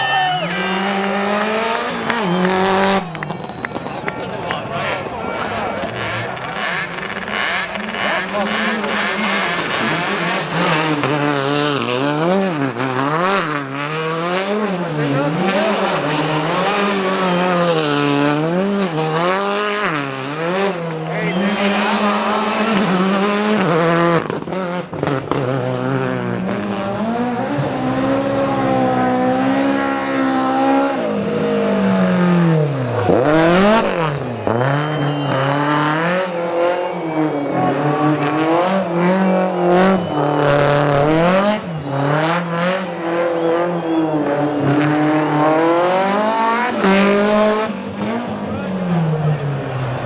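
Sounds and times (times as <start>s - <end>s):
rally car engine revving: 0.0s - 50.0s
tyres squealing: 6.8s - 12.6s, 15.3s - 19.0s, 21.1s - 24.3s.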